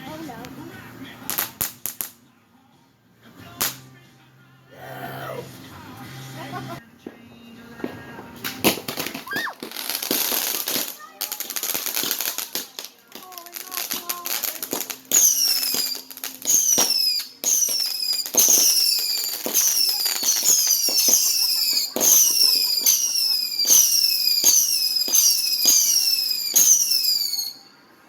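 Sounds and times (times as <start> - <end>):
firework crack: 0.0 - 2.3, 3.3 - 4.1, 5.3 - 28.0
shrill falling whistle: 9.2 - 9.6, 15.1 - 27.8.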